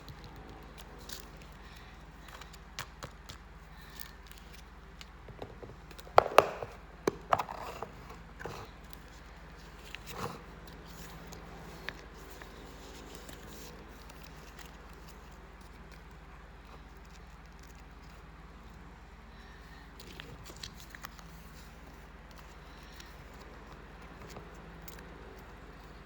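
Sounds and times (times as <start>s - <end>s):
sharp knocks: 6.2s - 7.2s.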